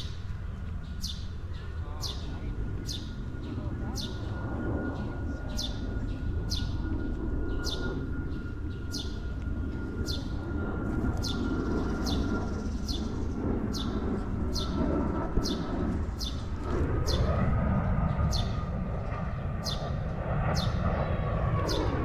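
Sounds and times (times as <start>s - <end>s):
bird chirping: 0.0s - 9.4s, 10.0s - 10.4s, 11.2s - 14.8s, 15.4s - 16.5s
faint constant high tone: 0.0s - 15.2s
steady low rumble: 0.0s - 22.0s.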